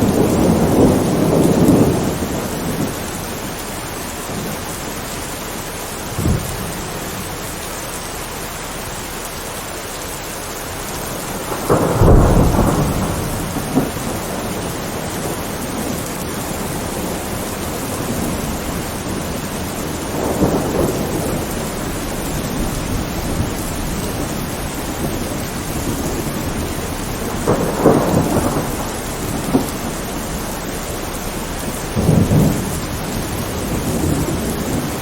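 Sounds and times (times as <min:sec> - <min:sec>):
thunder rumbling: 0:00.0 - 0:09.2, 0:10.4 - 0:35.0
steady rain: 0:00.0 - 0:35.0
sharp thunder crack: 0:06.1 - 0:07.0, 0:11.3 - 0:16.0, 0:16.6 - 0:30.7, 0:31.7 - 0:35.0.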